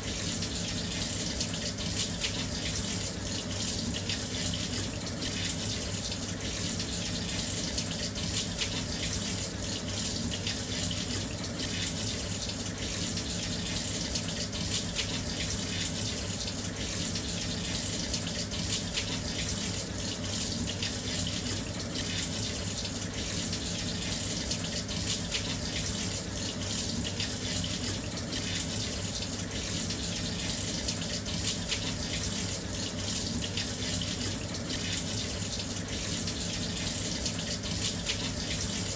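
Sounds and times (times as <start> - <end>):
water pouring into washing machine: 0.0 - 38.9.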